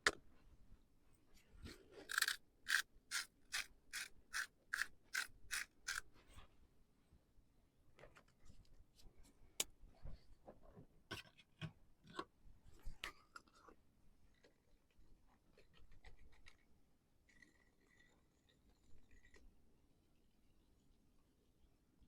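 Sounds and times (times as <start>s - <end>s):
light scraping: 1.7s - 6.0s.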